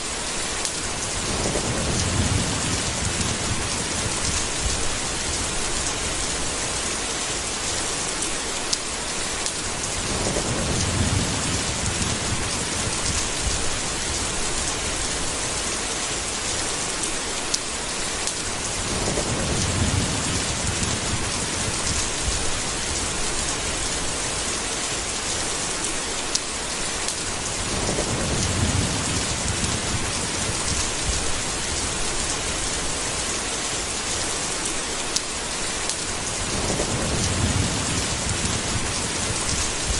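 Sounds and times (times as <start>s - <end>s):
heavy rain hissing: 0.0s - 39.9s
thunder rolling: 1.1s - 5.6s, 10.0s - 14.5s, 18.8s - 23.8s, 27.6s - 32.7s, 36.3s - 39.9s.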